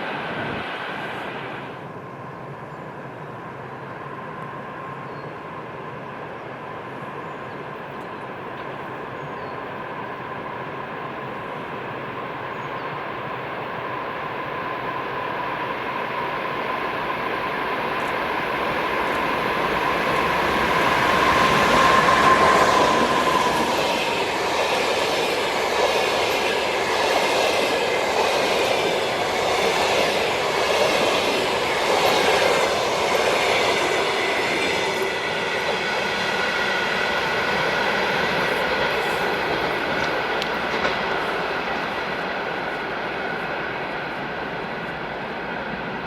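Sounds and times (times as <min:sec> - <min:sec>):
electric locomotive whine passing: 0:00.0 - 0:46.0
train wheels clattering on rails: 0:18.0 - 0:44.2.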